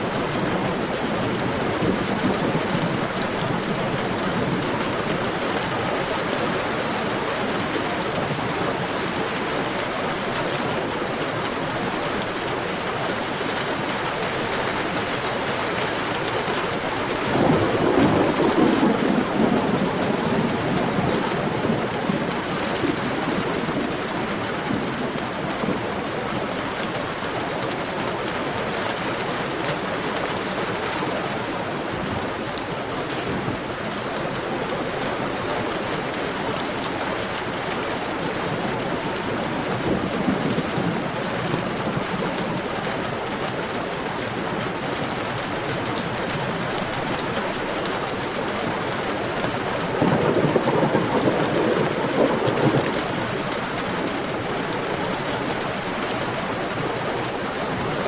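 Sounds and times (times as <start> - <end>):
heavy rain falling: 0.0 - 58.0
low rumble of thunder: 16.8 - 25.9, 49.8 - 55.2.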